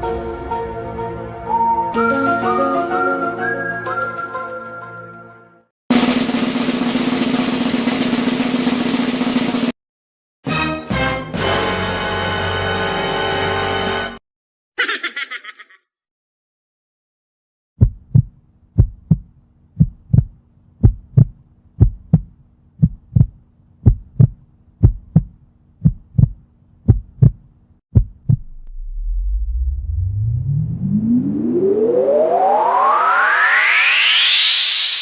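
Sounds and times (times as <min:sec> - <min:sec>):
heartbeat thumps: 0:17.8 - 0:28.7
rising whoosh: 0:28.3 - 0:35.0.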